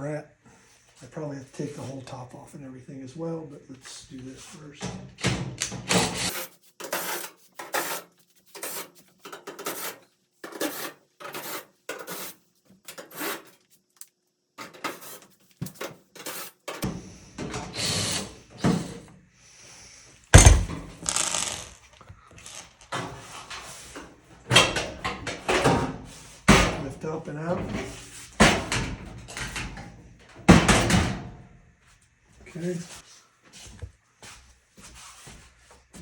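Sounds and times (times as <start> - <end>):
hand tools rasping on screws: 6.0 - 13.6, 22.4 - 22.9
loud thump: 20.4 - 21.7.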